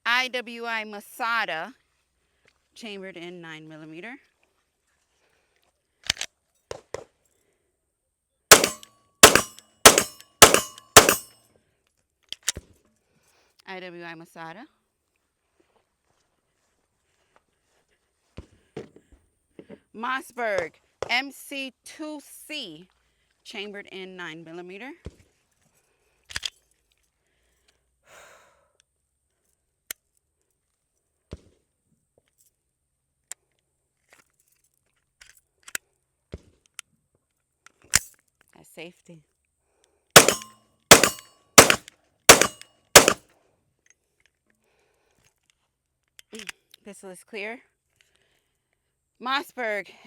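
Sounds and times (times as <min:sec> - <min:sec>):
pistol shots: 0:08.5 - 0:11.3, 0:40.2 - 0:43.2.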